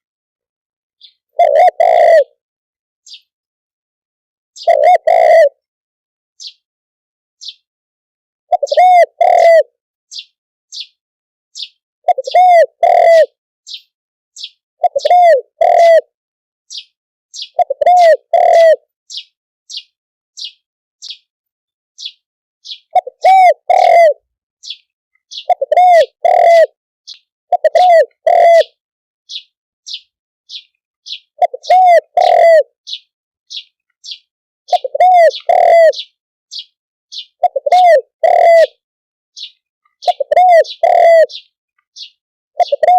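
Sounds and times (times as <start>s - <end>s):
dove cooing: 1.4s - 2.4s, 4.6s - 5.6s, 8.5s - 9.7s, 12.1s - 13.4s, 14.8s - 16.1s, 17.5s - 18.8s, 22.7s - 24.3s, 25.3s - 26.8s, 27.5s - 28.8s, 31.4s - 33.0s, 34.7s - 36.1s, 37.1s - 38.8s, 39.4s - 41.5s, 42.6s - 42.9s.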